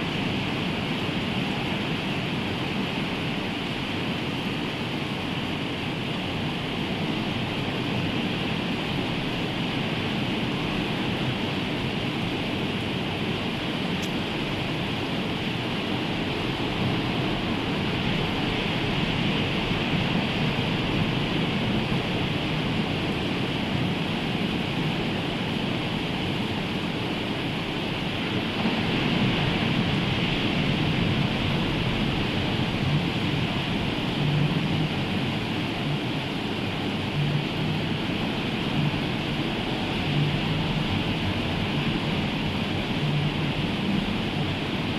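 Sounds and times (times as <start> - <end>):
rain: 0.0 - 44.9
sea surf breaking: 27.9 - 44.9.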